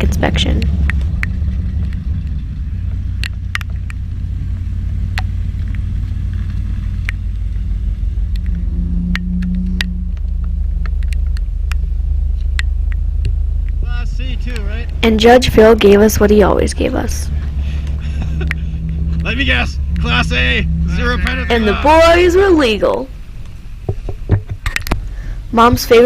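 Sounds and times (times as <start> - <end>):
brief low hum: 0.0 - 23.6
car engine running: 0.0 - 26.0.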